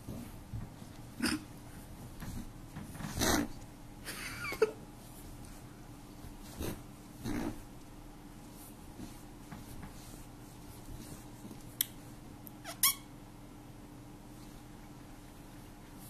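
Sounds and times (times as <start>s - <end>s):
rabbit breathy puffs: 0.0s - 3.6s, 5.1s - 7.7s
rabbit rising squeak: 12.6s - 13.1s.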